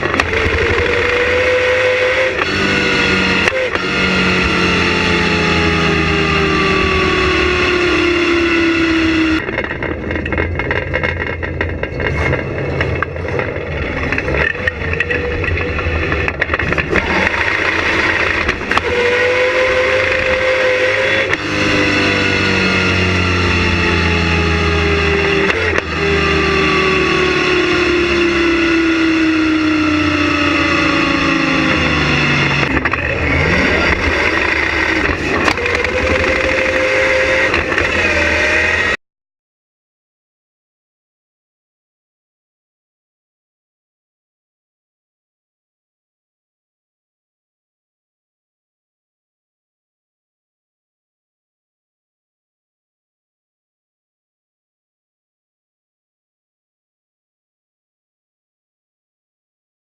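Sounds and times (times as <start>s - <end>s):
car engine running: 0.0s - 39.0s.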